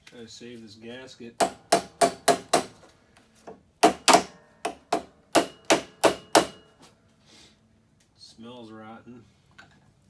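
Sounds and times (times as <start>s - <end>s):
sharp knocks on hard object: 1.4s - 2.8s, 3.5s - 6.7s.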